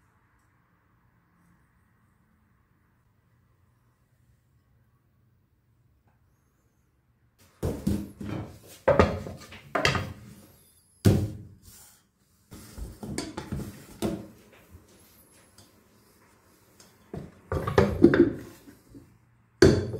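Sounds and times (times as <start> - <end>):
wooden tub knocking on steel counter: 19.6 - 19.9.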